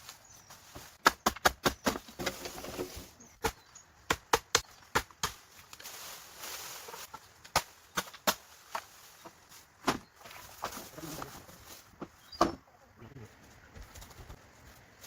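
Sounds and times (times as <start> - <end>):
blade chopping wood: 1.0 - 2.8, 3.4 - 5.4.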